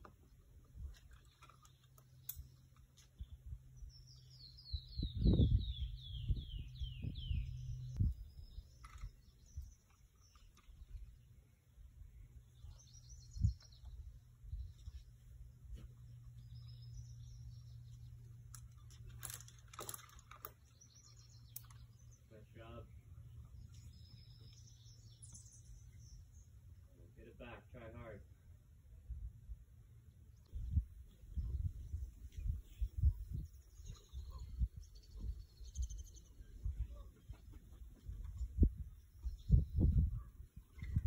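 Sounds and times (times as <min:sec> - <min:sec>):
bird singing descending notes: 0:03.8 - 0:14.8.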